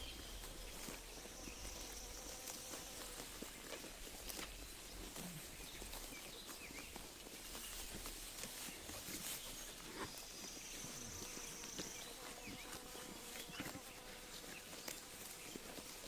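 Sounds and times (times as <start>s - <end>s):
insect-like buzz: 0.0s - 4.6s, 10.8s - 16.0s
sheep tearing and chewing grass: 0.0s - 16.0s.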